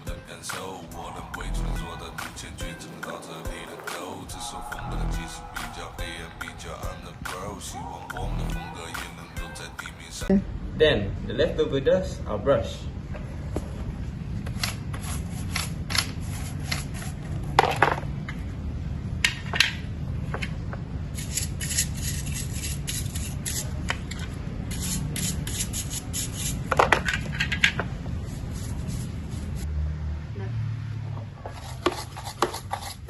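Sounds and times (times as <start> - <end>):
steady low hum: 0.0 - 26.7
brushing: 14.9 - 17.3, 21.2 - 27.3, 28.1 - 29.7, 31.4 - 33.0.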